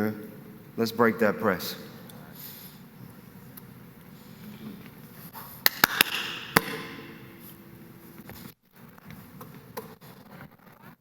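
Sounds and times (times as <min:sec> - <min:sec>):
basketball bouncing on hard floor: 0:05.8 - 0:07.2.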